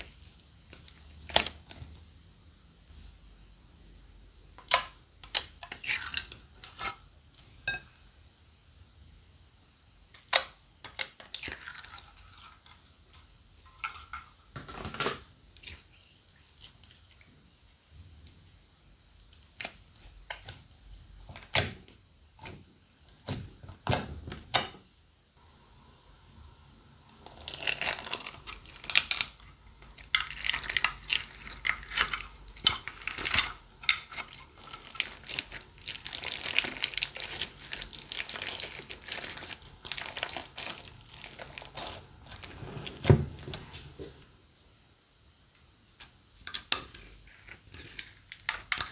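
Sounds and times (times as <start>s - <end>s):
crinkly crackling of squeezed slime: 0.0s - 2.0s, 10.1s - 13.2s, 27.1s - 43.6s, 46.6s - 48.9s.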